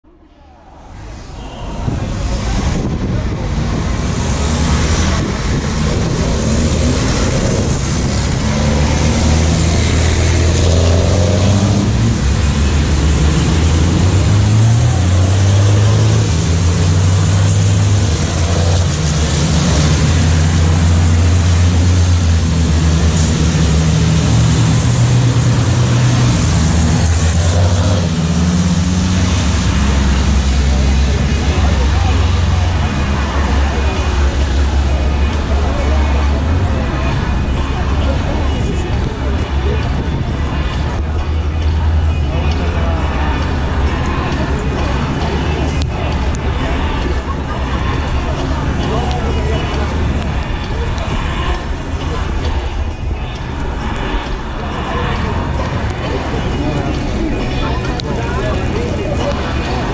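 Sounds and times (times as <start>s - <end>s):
truck diesel engines droning: 0.1s - 59.9s.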